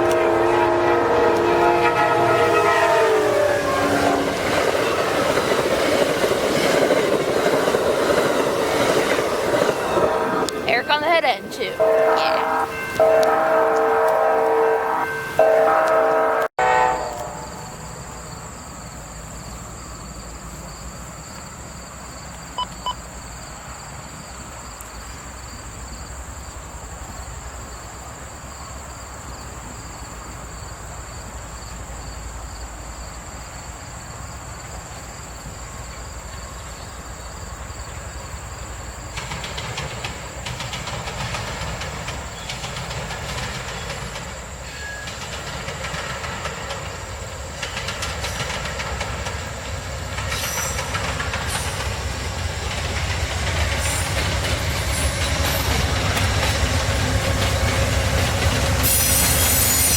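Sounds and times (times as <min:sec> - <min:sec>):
train rumbling past: 0:00.0 - 0:59.9
wheels clacking over rail joints: 0:03.2 - 0:11.4, 0:37.9 - 0:59.9
short high beeps: 0:22.6 - 0:23.0.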